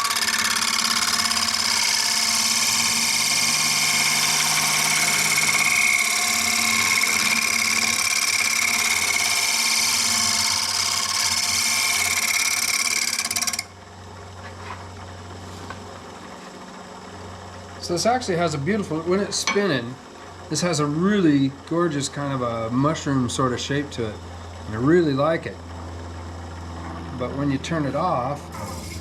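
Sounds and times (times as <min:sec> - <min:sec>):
turning tool cutting wood on lathe: 0:00.0 - 0:13.7, 0:28.5 - 0:29.0
lathe motor hum: 0:00.0 - 0:13.8, 0:26.1 - 0:29.0.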